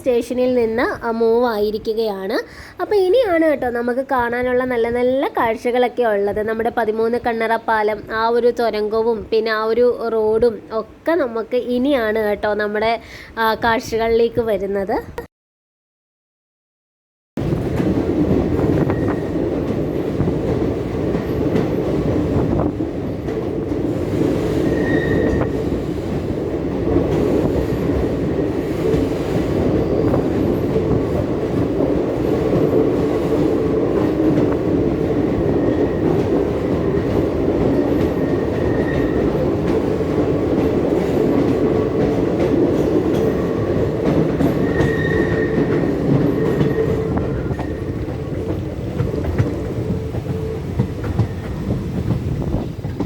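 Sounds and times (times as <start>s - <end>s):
train wheels rumbling on rails: 17.4s - 53.0s
high wheel squeals: 24.6s - 25.7s, 44.4s - 48.0s.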